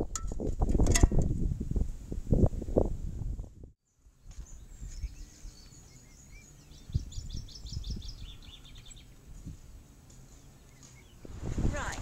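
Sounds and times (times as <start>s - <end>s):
songbird singing: 3.8s - 12.0s.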